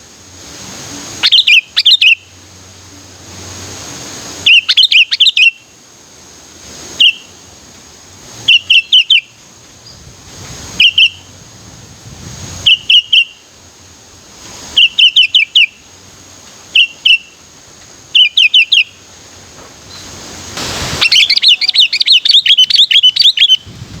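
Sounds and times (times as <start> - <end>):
bulbul calling: 1.2 - 2.3, 4.4 - 5.6, 7.0 - 7.4, 8.5 - 10.0, 10.8 - 11.3, 12.6 - 13.5, 14.8 - 15.9, 16.7 - 17.4, 18.1 - 19.1, 19.9 - 23.6.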